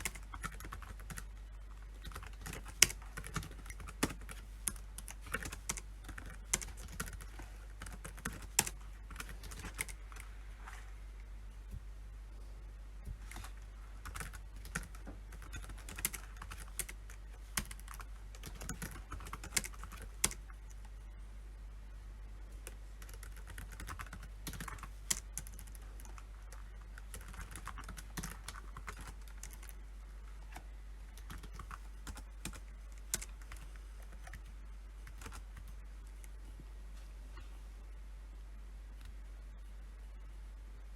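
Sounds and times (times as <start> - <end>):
typing on computer keyboard: 0.0 - 1.3, 2.0 - 10.2, 13.3 - 20.8, 22.6 - 29.8, 31.2 - 35.7
steady low hum: 0.0 - 40.9.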